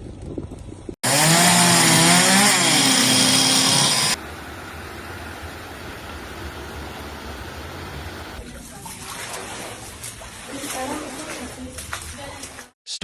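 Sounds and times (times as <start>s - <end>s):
small motor revving: 1.0s - 4.2s, 5.0s - 8.4s.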